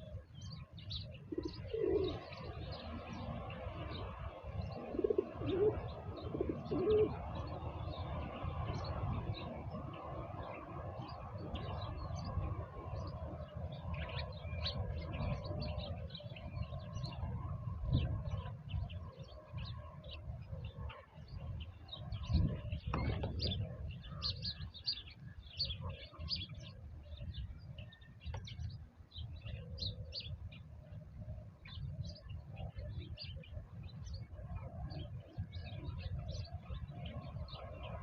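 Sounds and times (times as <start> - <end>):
small birds chirping: 0.0 - 38.0
dove cooing: 1.2 - 2.9, 4.7 - 7.6.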